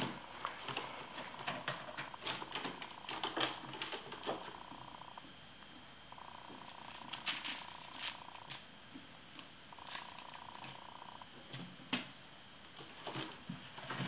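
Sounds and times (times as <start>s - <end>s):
sharp clicks and scratches: 0.6s - 5.2s
kitten purring: 1.1s - 5.2s, 6.1s - 8.6s, 9.3s - 11.3s.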